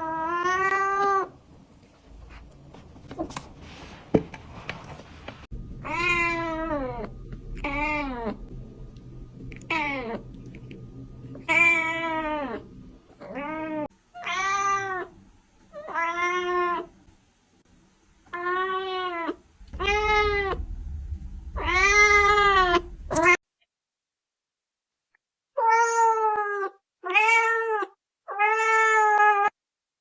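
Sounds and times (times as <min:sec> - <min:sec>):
faint rustling: 0:01.2 - 0:13.9, 0:19.5 - 0:23.4.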